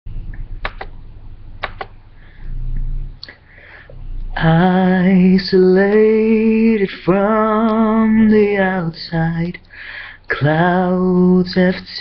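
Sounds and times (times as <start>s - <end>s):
low hum: 0.1s - 12.0s
sharp clicks: 0.3s - 1.0s, 1.6s - 2.0s
man singing: 4.4s - 9.7s, 10.3s - 12.0s.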